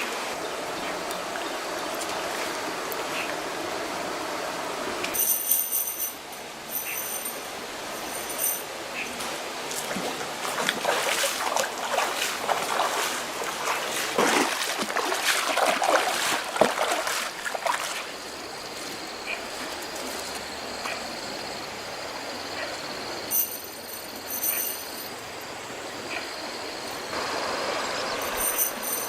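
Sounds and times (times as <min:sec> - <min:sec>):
water splashing and sloshing: 0:00.0 - 0:05.8, 0:06.7 - 0:21.4.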